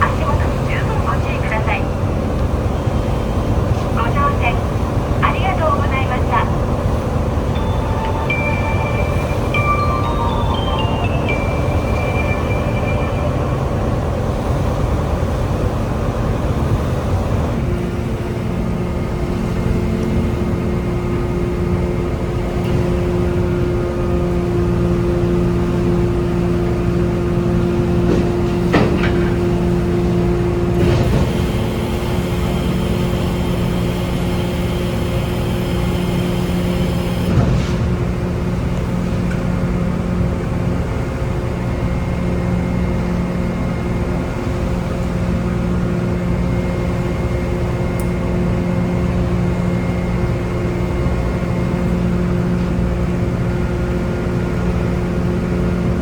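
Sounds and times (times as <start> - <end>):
boat engines humming: 0.0 - 37.4.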